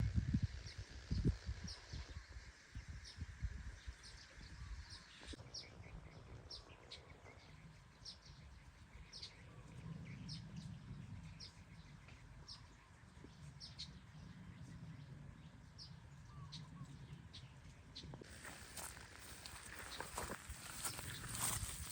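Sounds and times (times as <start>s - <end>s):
small bird chirping: 15.9s - 21.9s.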